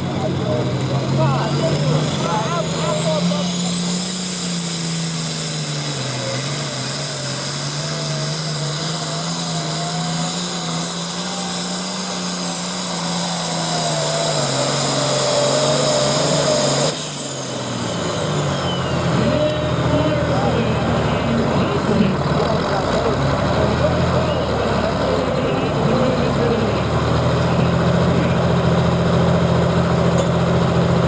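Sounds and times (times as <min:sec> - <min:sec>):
engine at full throttle: 0:00.0 - 0:31.0
high-pitched whine: 0:01.2 - 0:23.2.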